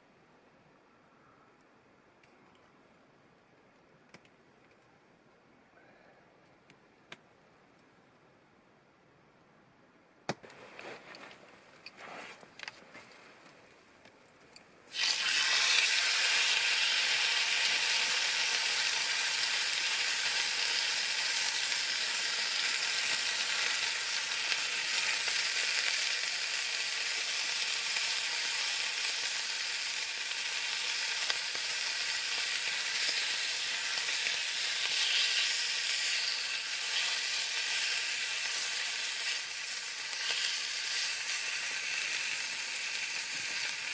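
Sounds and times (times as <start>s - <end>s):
handling rustles: 10.4s - 14.4s
food sizzling in a pan: 14.9s - 43.9s.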